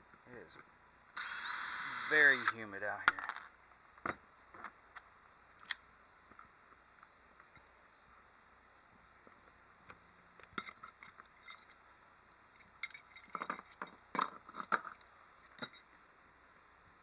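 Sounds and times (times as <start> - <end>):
metallic clicks of hand tools: 10.4 - 11.8, 12.6 - 15.9.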